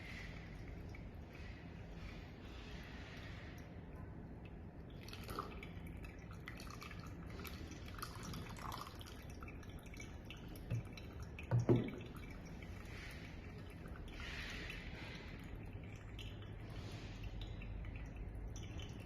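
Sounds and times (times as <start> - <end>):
liquid dripping: 0.0 - 19.0
soft knocks: 11.5 - 12.0.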